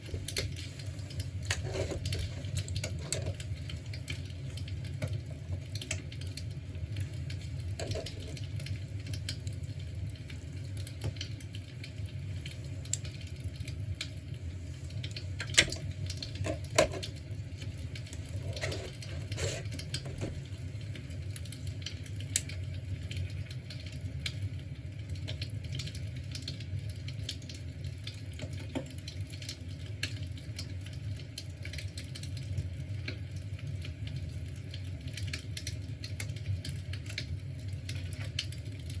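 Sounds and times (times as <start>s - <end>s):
imitation fire crackling: 0.0s - 39.0s.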